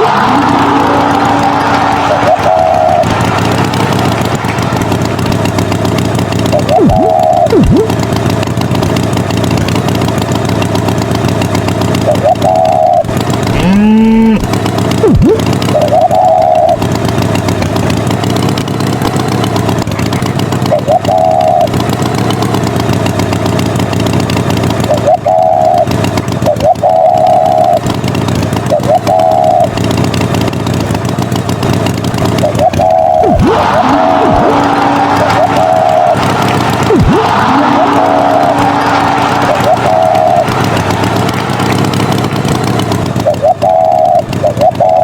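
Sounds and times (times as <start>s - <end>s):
rising tone: 0.0s - 8.0s, 12.2s - 16.8s, 32.5s - 45.0s
short higher tones: 0.0s - 8.0s, 12.2s - 16.8s
tractor engine running: 0.0s - 45.0s.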